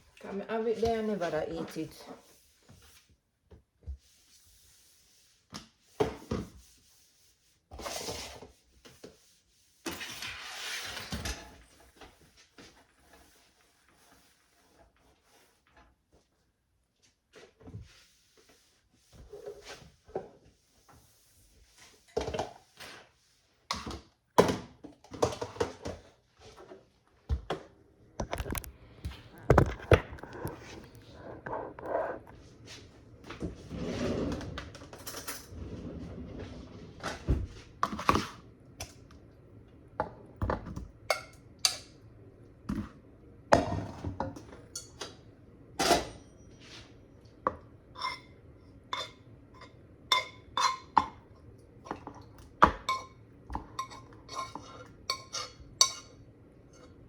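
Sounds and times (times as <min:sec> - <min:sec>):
dishes and utensils clattering: 0:49.0 - 0:51.2, 0:51.9 - 0:57.0.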